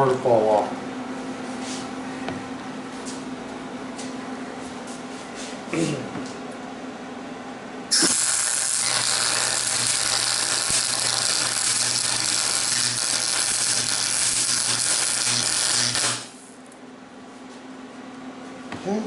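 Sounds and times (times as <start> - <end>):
low welder hum: 6.5 - 18.0
welding arc sizzling hiss: 7.9 - 16.5.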